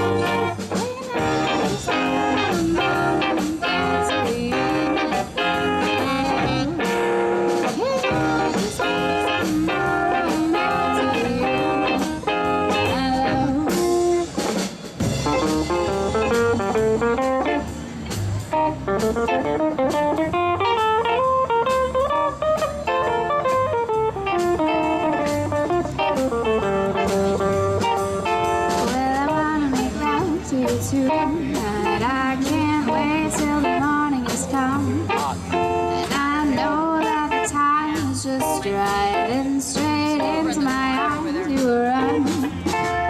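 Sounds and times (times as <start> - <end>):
instrumental rock band: 0.0 - 43.0
lead melody in quick runs: 0.0 - 43.0.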